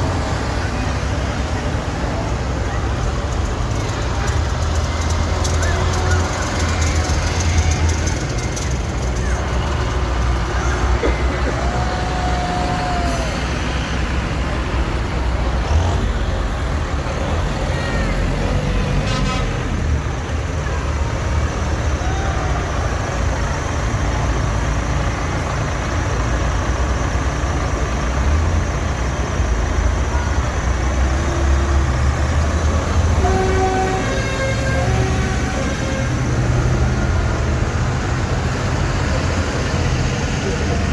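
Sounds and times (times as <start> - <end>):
tractor engines rumbling: 0.0 - 40.9
horn toot: 33.1 - 36.4.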